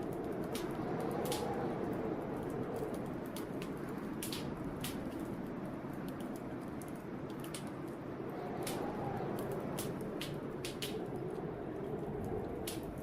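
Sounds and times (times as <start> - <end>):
blizzard wind howling: 0.0 - 13.0
wood fire crackling and popping: 0.0 - 13.0.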